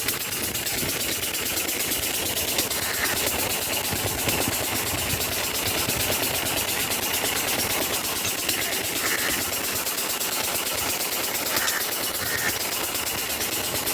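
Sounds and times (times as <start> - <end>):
diesel pump engine running: 0.0 - 13.9.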